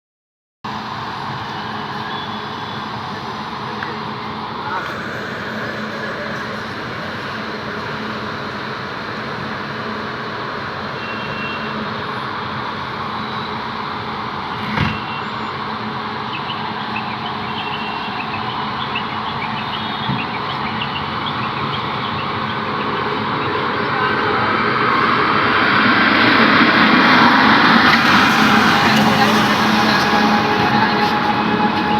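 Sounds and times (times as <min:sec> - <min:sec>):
train running rumble: 0:00.7 - 0:31.9.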